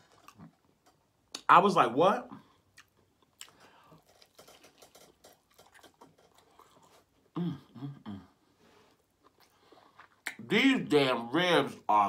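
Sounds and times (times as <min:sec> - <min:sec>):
wet chewing smacks: 0:02.7 - 0:07.2
person humming in enjoyment: 0:07.4 - 0:08.4.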